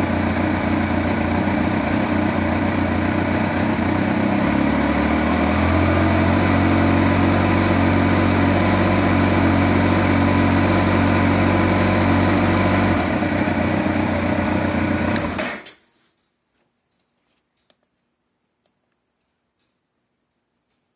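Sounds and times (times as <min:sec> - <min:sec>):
motorcycle engine running: 0:00.0 - 0:15.7.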